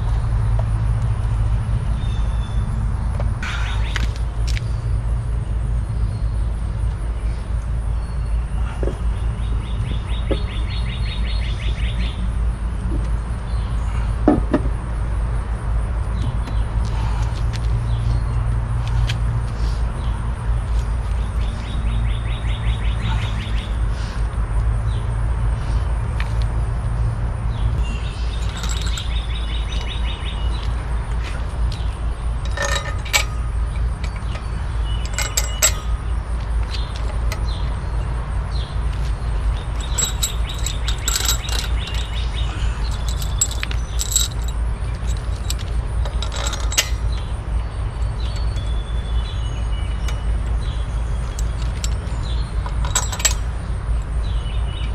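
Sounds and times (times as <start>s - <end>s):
birds chirping: 0.6s - 14.9s, 19.6s - 25.9s, 27.4s - 54.9s
metal parts clinking: 28.3s - 30.0s, 31.7s - 37.7s, 39.4s - 48.9s, 50.0s - 53.6s.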